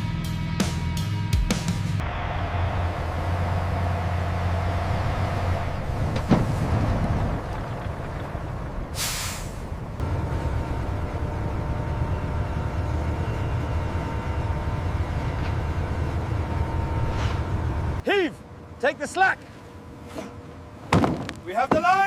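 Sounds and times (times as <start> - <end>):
ship engine rumble: 2.0 - 22.0
short hiss: 9.0 - 9.7.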